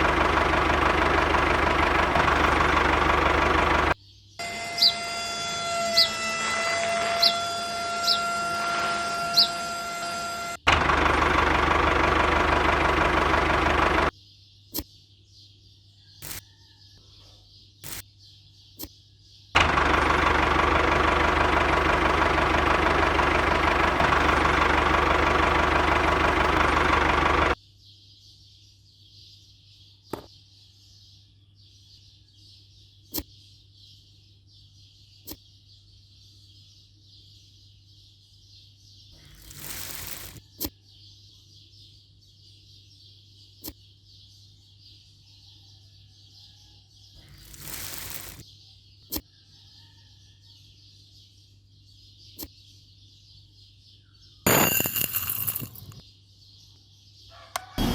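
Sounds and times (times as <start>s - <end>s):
small motor running: 0.0s - 14.1s, 19.6s - 27.6s, 39.2s - 40.4s, 47.2s - 48.4s.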